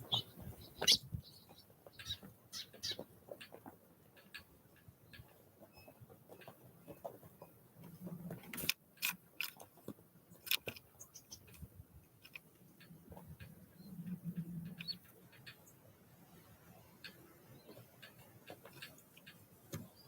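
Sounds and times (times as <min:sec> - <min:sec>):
faint high bird chirps: 0:00.0 - 0:03.0, 0:14.6 - 0:15.1
birds pecking and hopping: 0:00.0 - 0:20.0.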